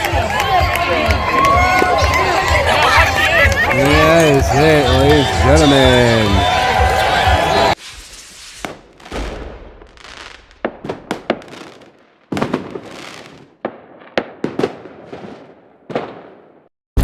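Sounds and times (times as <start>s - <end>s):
fireworks bangs and booms: 7.7s - 16.7s.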